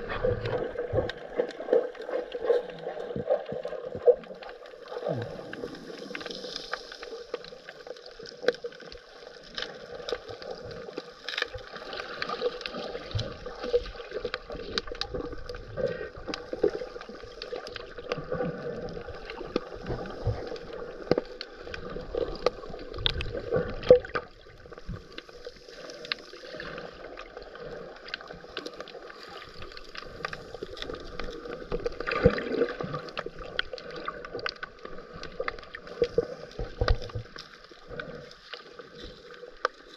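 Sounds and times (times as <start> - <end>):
sharp clicks and crackles underwater: 0.0 - 39.9
exhaled regulator bubbles: 29.6 - 37.2.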